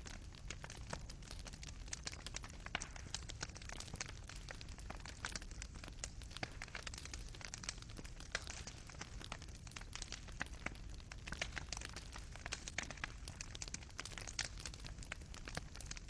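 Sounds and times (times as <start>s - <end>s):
burning coals popping: 0.0s - 16.0s
fireplace fire crackling: 0.0s - 16.0s.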